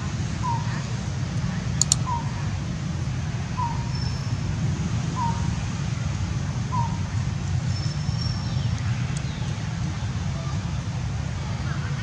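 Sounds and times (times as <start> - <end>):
sharp clicks: 1.8 - 2.1.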